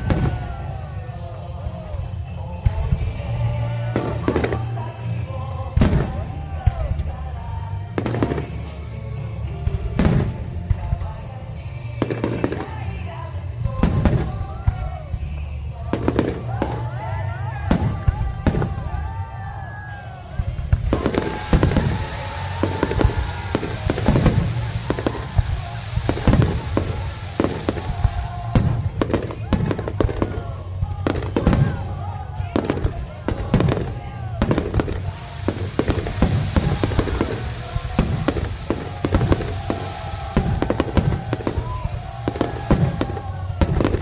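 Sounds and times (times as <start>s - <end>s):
firework bangs and crackles: 0.0s - 44.0s
whistling firework shells: 20.8s - 31.8s, 32.4s - 44.0s.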